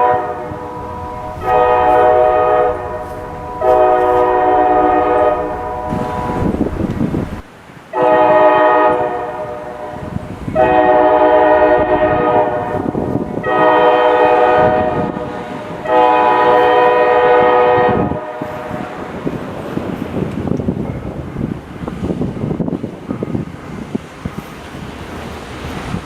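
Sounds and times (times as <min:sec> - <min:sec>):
locomotive air horn blasts: 0:00.0 - 0:06.8, 0:07.9 - 0:19.2
low rumble of train: 0:00.0 - 0:26.0.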